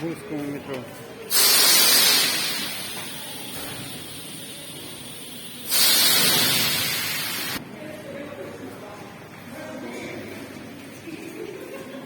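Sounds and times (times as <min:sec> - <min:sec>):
compressed air hissing: 0:01.3 - 0:07.6.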